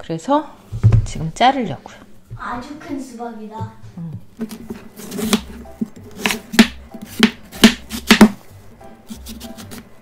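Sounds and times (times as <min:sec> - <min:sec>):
knife chopping watermelon on board: 0:04.4 - 0:08.4, 0:09.1 - 0:09.9.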